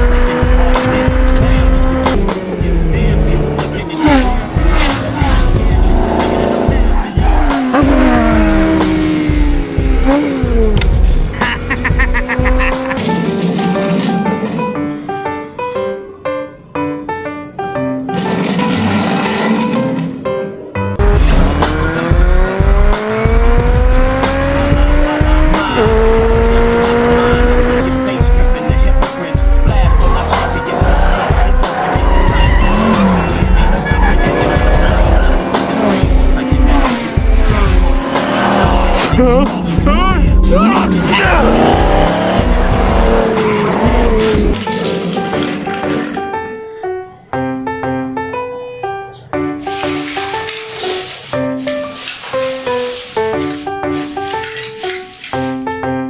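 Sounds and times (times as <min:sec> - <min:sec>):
music with low beat: 0:00.0 - 0:14.1, 0:20.8 - 0:44.6
race car engines revving: 0:00.0 - 0:14.4, 0:18.2 - 0:20.0, 0:21.0 - 0:46.1
tyres squealing: 0:29.9 - 0:46.1, 0:49.7 - 0:55.7.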